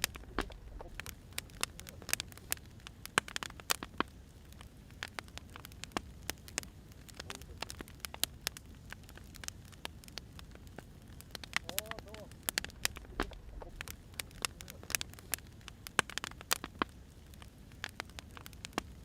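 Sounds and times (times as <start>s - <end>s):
low steady rumble: 0.0s - 3.0s, 8.3s - 16.0s
wood fire crackling: 0.0s - 19.0s.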